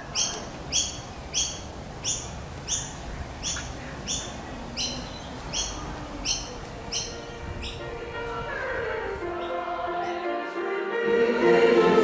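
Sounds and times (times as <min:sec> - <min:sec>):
bird calling: 0:00.0 - 0:07.9.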